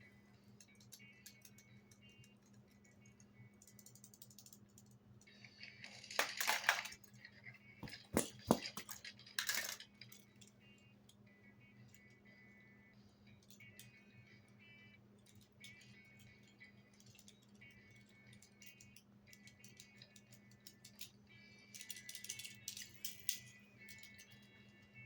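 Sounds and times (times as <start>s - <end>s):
toy vehicles clattering in a box: 5.6s - 10.3s.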